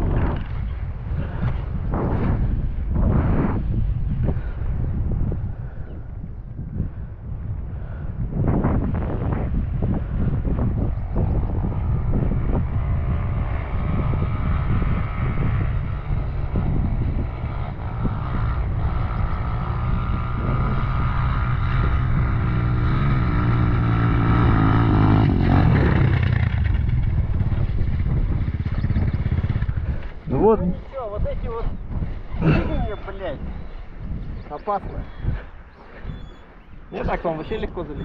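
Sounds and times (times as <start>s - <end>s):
wind buffeting microphone: 0.0s - 38.0s
dirt bike engine revving: 13.0s - 30.6s.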